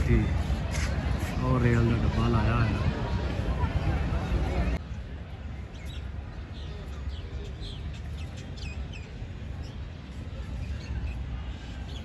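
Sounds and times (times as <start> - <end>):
small birds chirping: 5.6 - 12.0.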